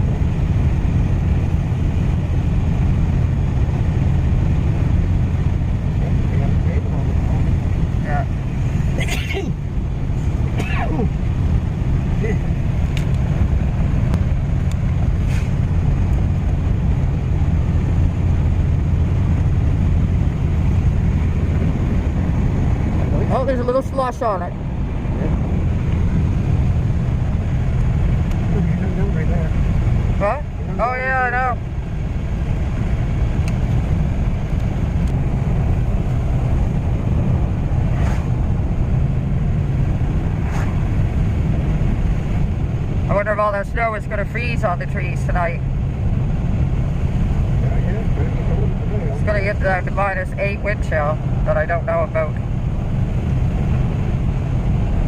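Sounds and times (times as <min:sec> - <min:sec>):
engine and road rumble: 0:00.0 - 0:55.0
light ticks: 0:12.9 - 0:13.3, 0:27.8 - 0:28.4, 0:33.4 - 0:33.8
faint soft swishes: 0:15.2 - 0:15.7, 0:37.8 - 0:38.5, 0:40.2 - 0:41.0.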